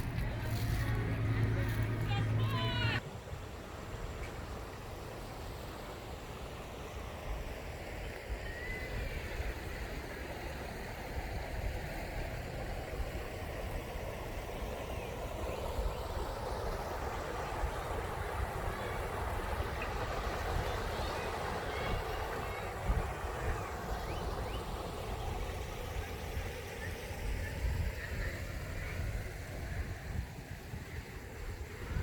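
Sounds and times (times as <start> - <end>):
bicycle tyre road noise: 0.0 - 3.0
wind buffeting microphone: 27.4 - 32.0.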